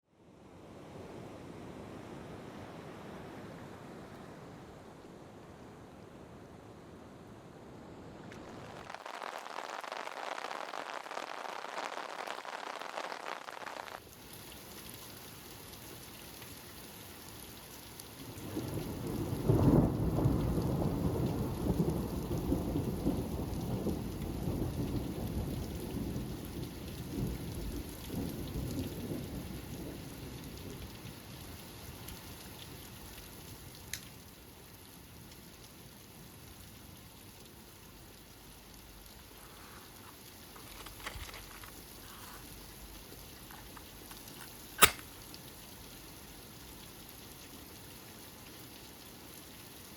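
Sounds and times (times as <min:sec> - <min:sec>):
rain falling: 0:03.8 - 0:49.9
brief click: 0:44.8 - 0:45.1.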